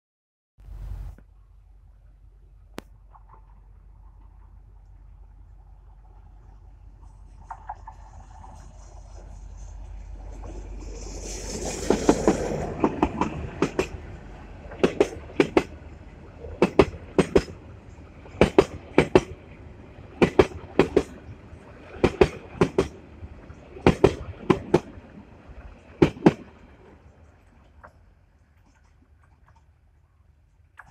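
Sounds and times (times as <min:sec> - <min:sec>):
diesel locomotive passing: 0:04.1 - 0:28.2
train wheels clacking over rail joint: 0:10.4 - 0:14.0, 0:14.7 - 0:15.8, 0:16.6 - 0:17.6, 0:18.4 - 0:19.4, 0:20.2 - 0:21.2, 0:22.0 - 0:23.0, 0:23.8 - 0:25.0, 0:26.0 - 0:26.5.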